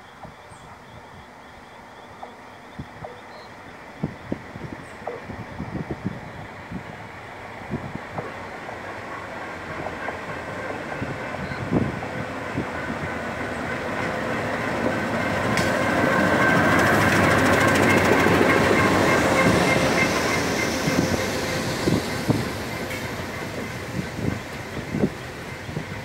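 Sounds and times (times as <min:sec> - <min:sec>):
diesel locomotive passing: 0:00.0 - 0:26.0
wheels clacking over rail joints: 0:12.6 - 0:25.9.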